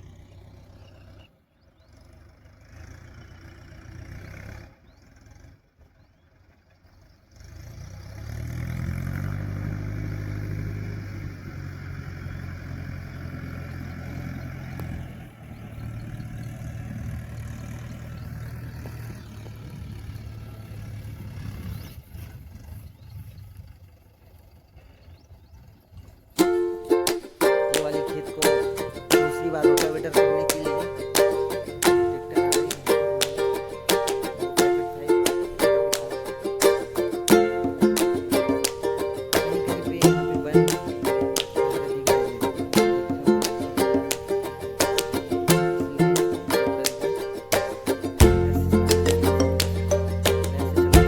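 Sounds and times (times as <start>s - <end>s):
tractor diesel engine running: 0.0s - 21.4s.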